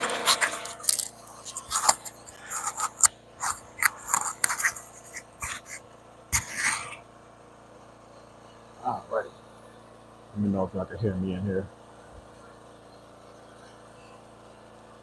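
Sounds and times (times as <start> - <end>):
phone handling scrapes and taps: 0.1 - 5.8, 6.4 - 6.9.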